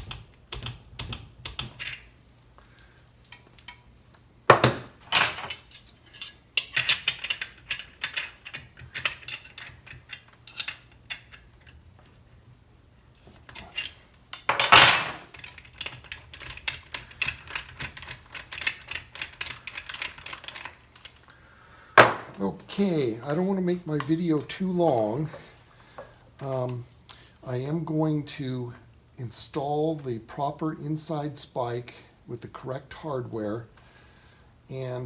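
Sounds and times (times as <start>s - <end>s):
metal tools clinking: 4.5s - 11.4s, 13.5s - 21.2s, 22.0s - 22.4s.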